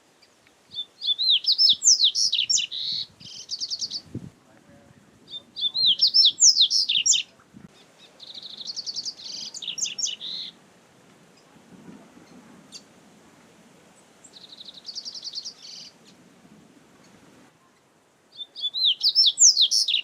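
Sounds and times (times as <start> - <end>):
faint low background noise: 0.0 - 20.0
bird singing rapid notes: 0.2 - 4.2, 5.3 - 10.6, 14.2 - 16.2, 18.3 - 20.0.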